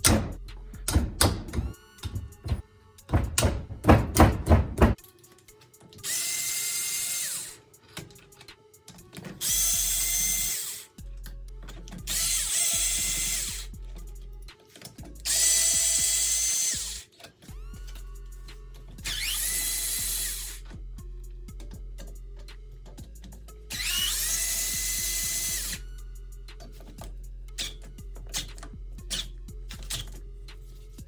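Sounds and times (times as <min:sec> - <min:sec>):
loud knocks: 0:00.0 - 0:05.0
power drill bursts: 0:09.4 - 0:10.9, 0:12.1 - 0:13.7, 0:15.3 - 0:17.0, 0:19.0 - 0:20.6, 0:23.8 - 0:25.8.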